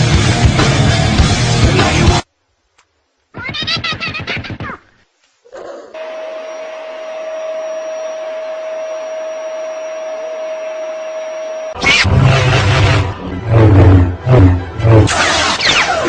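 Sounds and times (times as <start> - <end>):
appliance motor whining: 6.0 - 15.8.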